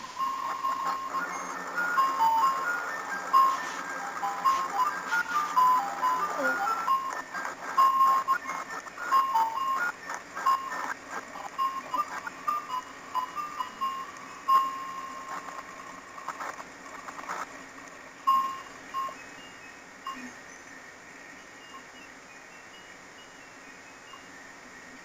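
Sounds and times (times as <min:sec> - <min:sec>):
ice cream truck chime jingle: 0:00.0 - 0:15.4, 0:18.3 - 0:20.6.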